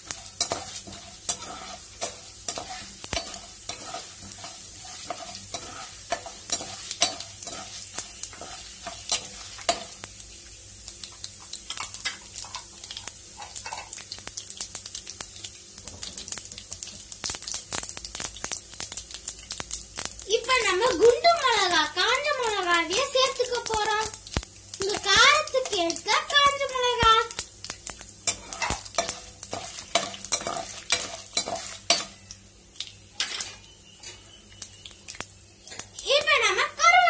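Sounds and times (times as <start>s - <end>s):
spatula scraping pan: 0.0s - 9.9s, 28.2s - 32.2s
seeds sizzling and popping in oil: 0.0s - 37.0s.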